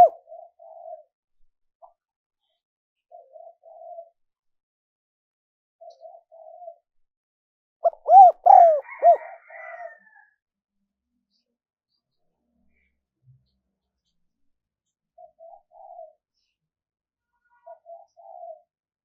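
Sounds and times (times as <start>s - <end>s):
dove cooing: 0.0s - 1.1s, 3.1s - 4.2s, 5.8s - 6.8s, 7.8s - 9.6s, 15.2s - 16.2s, 17.6s - 18.7s.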